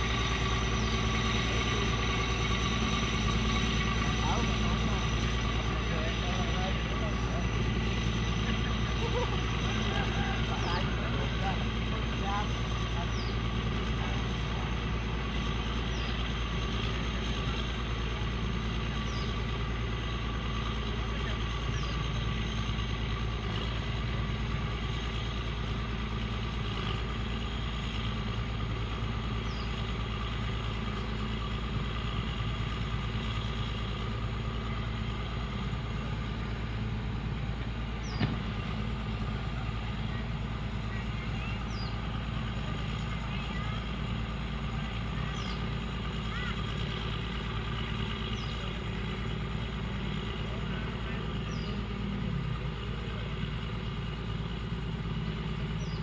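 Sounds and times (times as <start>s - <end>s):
heavy machinery engine running: 0.0s - 56.0s.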